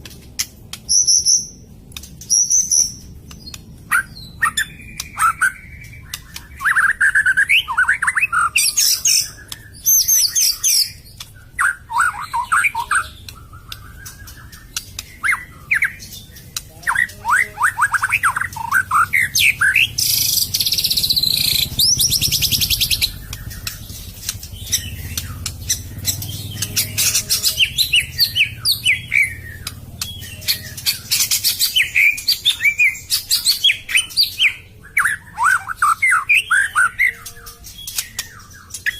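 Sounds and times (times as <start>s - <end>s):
bird singing whistled song: 0.9s - 1.6s, 2.2s - 38.9s
harsh rasping bird notes: 2.9s - 33.9s.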